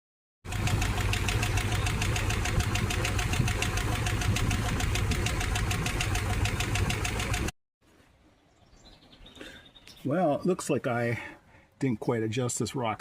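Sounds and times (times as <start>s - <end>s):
engine idling with valve ticking: 0.5s - 7.5s.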